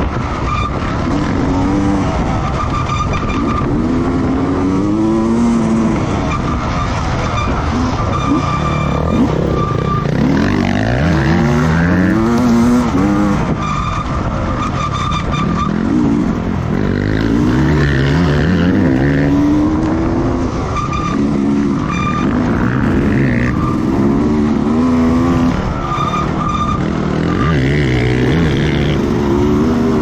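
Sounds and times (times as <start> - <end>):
racing motorcycle engines revving: 0.0 - 30.0.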